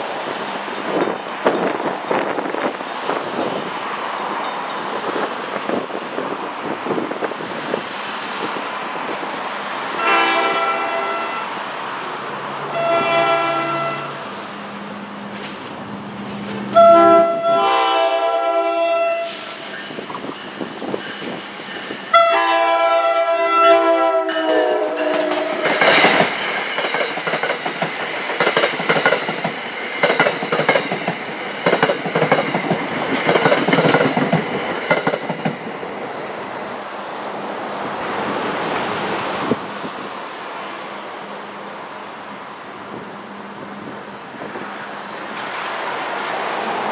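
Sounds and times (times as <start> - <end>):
wheels clacking over rail joints: 0.0 - 5.9, 24.4 - 36.7
train horn blasts: 10.0 - 11.6, 12.7 - 14.3, 16.7 - 19.6, 22.1 - 25.9.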